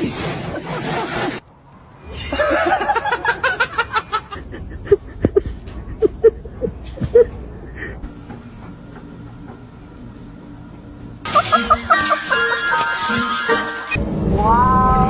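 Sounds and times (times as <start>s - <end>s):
person laughing: 2.2s - 8.1s, 11.3s - 12.8s
steady hum: 4.3s - 14.7s.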